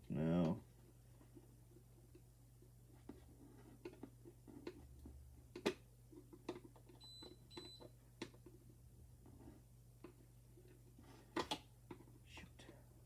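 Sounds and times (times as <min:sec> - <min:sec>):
faint clicks and handling taps: 0:00.4 - 0:08.6.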